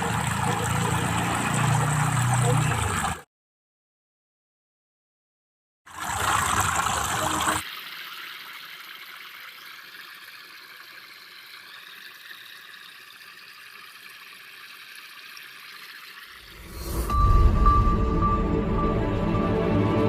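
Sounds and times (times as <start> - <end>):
fountain water trickling: 0.0 - 3.2, 5.9 - 16.9
rush of water: 5.9 - 8.8.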